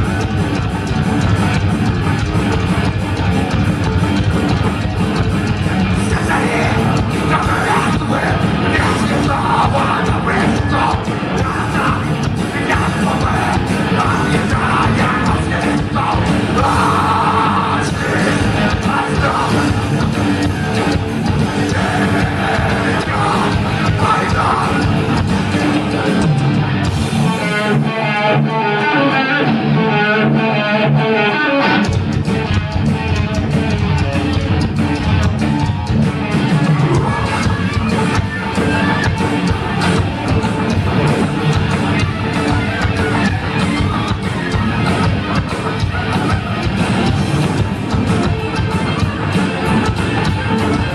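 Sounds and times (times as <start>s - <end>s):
electric guitar riff: 0.0s - 50.9s
thrash metal band playing: 0.0s - 50.9s
shouted vocals: 5.8s - 26.3s, 36.4s - 50.9s.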